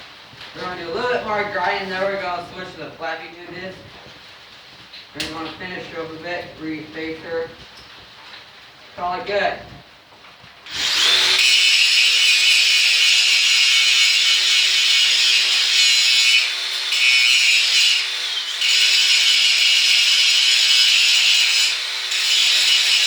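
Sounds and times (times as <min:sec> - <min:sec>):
angle grinder grinding steel: 0:10.7 - 0:23.0.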